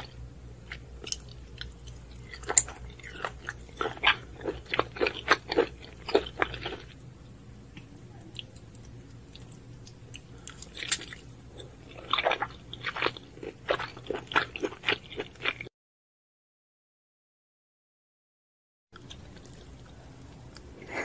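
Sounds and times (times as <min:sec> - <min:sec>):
wet chewing: 0:00.0 - 0:07.0.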